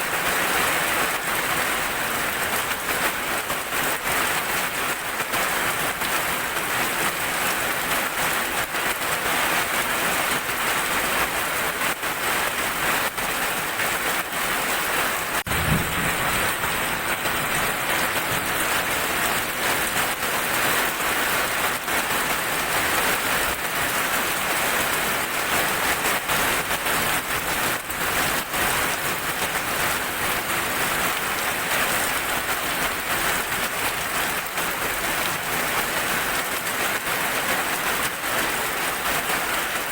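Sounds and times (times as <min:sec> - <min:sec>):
heavy rain falling: 0:00.0 - 0:39.9
low rumble of thunder: 0:15.5 - 0:19.8.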